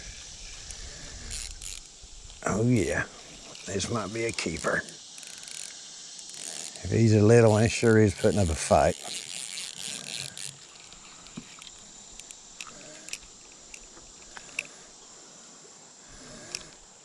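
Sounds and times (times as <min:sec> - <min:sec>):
high-pitched insect drone: 0:00.0 - 0:17.0
clicks from handling tackle: 0:07.4 - 0:14.8.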